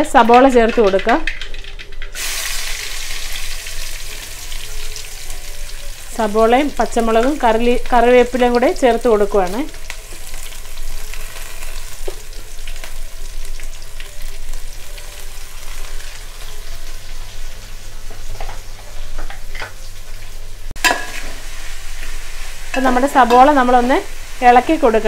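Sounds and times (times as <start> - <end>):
onions sizzling in hot oil: 0.0 - 25.0.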